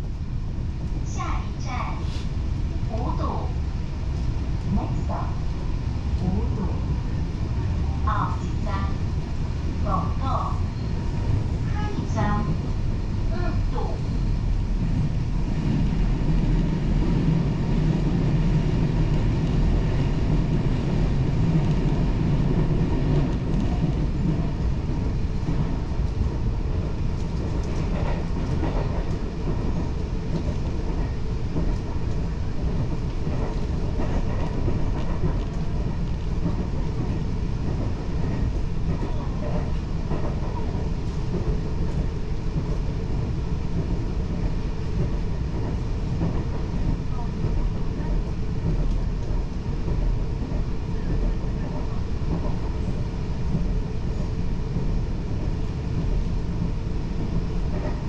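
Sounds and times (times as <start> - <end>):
low rumble of train wheels: 0.0 - 58.0
faint rail clicks: 21.4 - 24.5, 27.1 - 42.8, 43.8 - 54.4.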